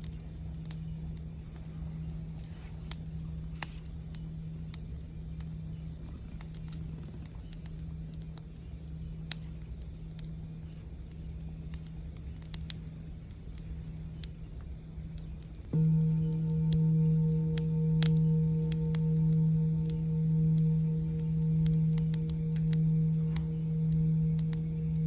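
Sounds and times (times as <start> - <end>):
campfire crackling: 0.0 - 25.0
steady low hum: 0.0 - 25.0.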